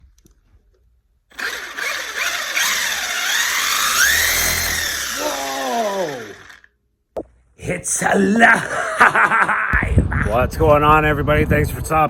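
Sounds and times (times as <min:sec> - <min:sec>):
drivetrain and tyre noise: 0:01.3 - 0:06.7
electric toy truck motor whine: 0:01.3 - 0:06.7
downward sliding tone: 0:01.4 - 0:06.6.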